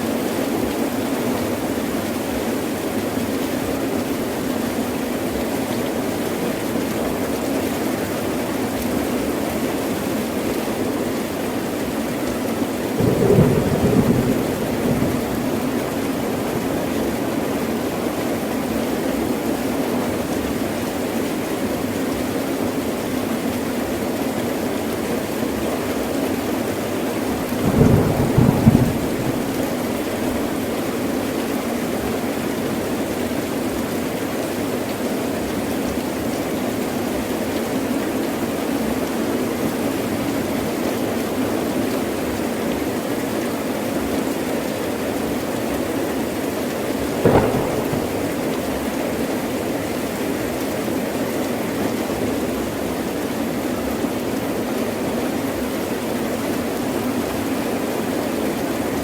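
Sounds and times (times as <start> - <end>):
heavy rain: 0.0 - 59.0
thunder: 13.0 - 17.6, 27.4 - 30.7, 47.1 - 49.3.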